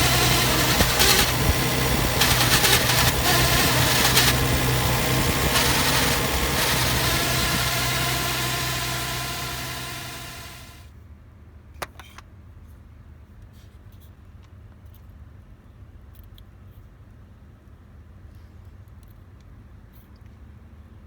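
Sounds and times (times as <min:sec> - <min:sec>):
car engine idling: 0:00.0 - 0:10.8.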